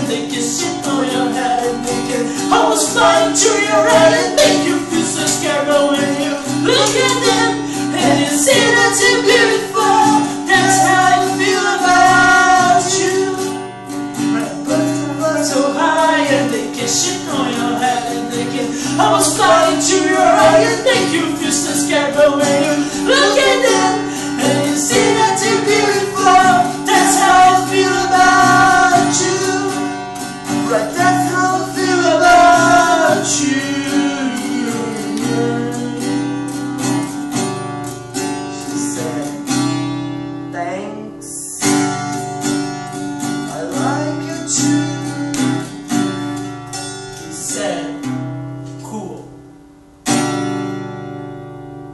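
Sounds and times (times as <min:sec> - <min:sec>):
strummed acoustic guitar: 0:00.0 - 0:51.9
person singing long notes: 0:14.4 - 0:29.9, 0:30.6 - 0:36.3.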